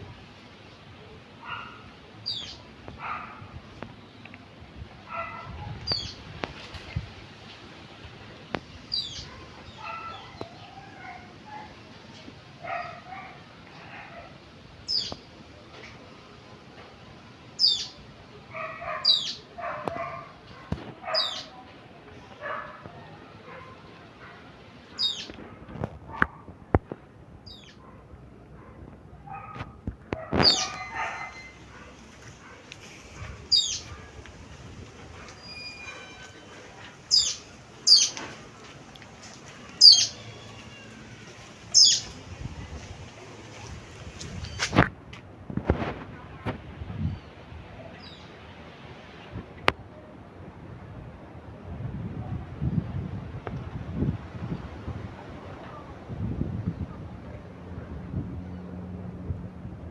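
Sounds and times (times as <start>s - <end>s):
dog barking: 1.4s - 1.9s, 3.0s - 3.5s, 5.1s - 5.8s, 9.2s - 11.8s, 12.6s - 14.4s, 18.5s - 21.6s, 22.4s - 24.5s, 27.8s - 34.2s
bird sharp falling calls: 30.4s - 31.6s, 33.5s - 34.0s, 37.1s - 38.2s, 39.8s - 40.8s, 41.7s - 42.2s.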